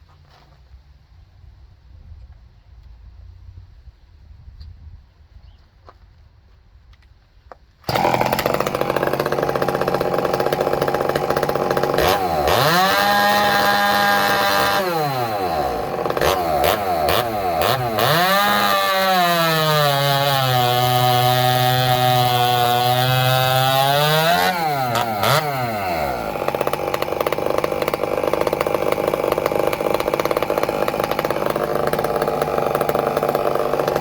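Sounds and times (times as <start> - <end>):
chainsaw running flat out: 7.9 - 34.0.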